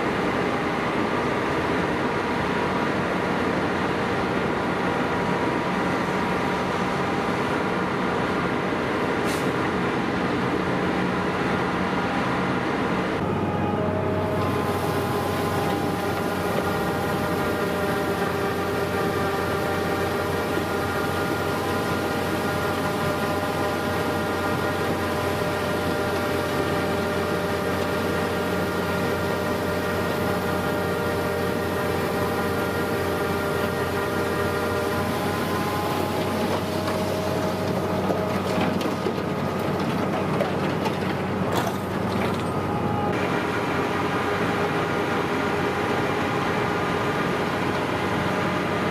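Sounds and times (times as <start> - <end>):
heavy machinery engine: 0.0 - 48.9
whining tones: 13.2 - 40.3.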